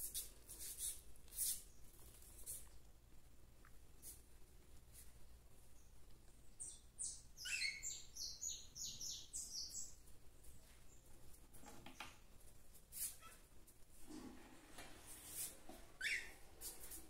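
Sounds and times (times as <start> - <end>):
bird chirping: 5.6 - 11.2, 16.0 - 16.8.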